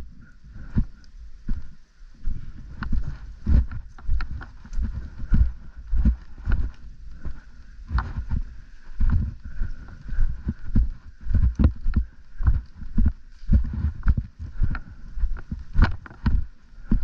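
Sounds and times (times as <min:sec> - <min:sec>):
footsteps: 0:00.0 - 0:17.0.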